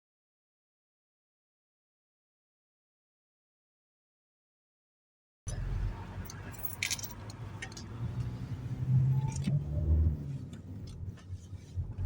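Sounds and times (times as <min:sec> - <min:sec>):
engine and road rumble: 0:05.5 - 0:12.0.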